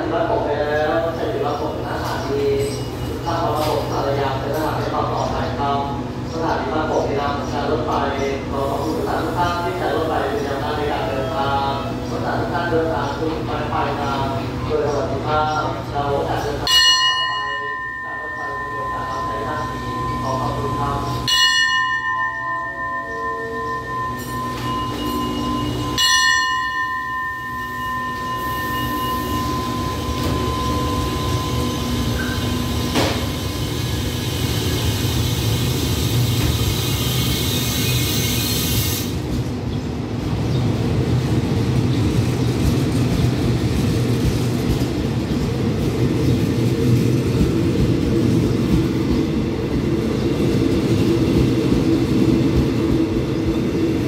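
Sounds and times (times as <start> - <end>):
train rumbling: 0.0 - 54.0
steady high tone: 16.6 - 35.9.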